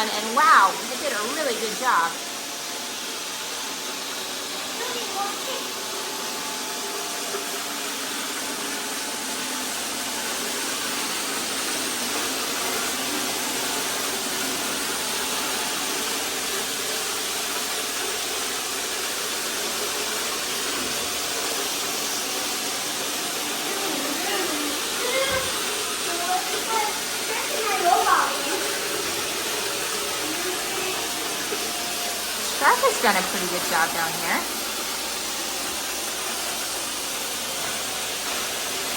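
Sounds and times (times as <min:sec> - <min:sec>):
robot vacuum cleaners whirring: 0:00.0 - 0:38.9.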